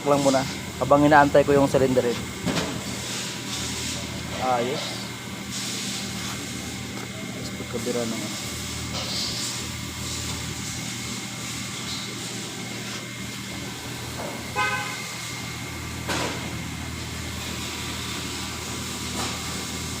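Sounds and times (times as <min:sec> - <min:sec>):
car horn toot: 0:14.5 - 0:15.2.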